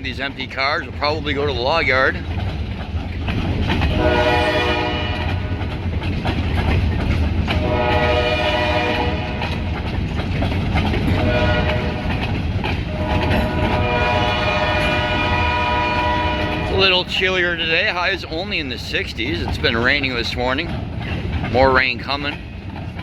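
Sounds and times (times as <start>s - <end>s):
train rumbling on rails: 0.0s - 23.0s
locomotive horn blasts: 3.9s - 5.7s, 7.6s - 9.7s, 11.1s - 12.3s, 12.9s - 17.0s.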